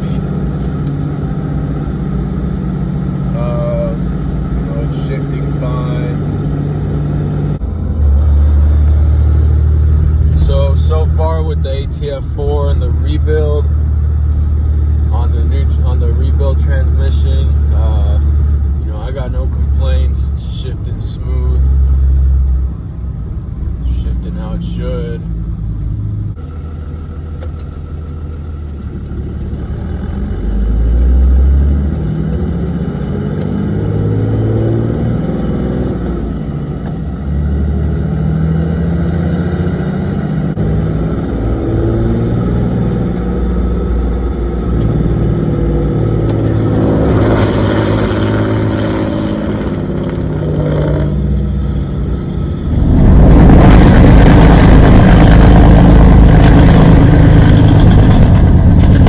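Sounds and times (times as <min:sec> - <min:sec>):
diesel truck engine revving: 0:00.0 - 0:59.0
loud rushing noise: 0:46.4 - 0:59.0.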